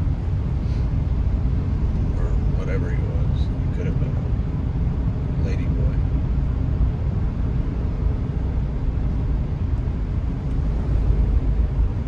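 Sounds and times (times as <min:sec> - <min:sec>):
car interior engine and tyre rumble: 0:00.0 - 0:12.0.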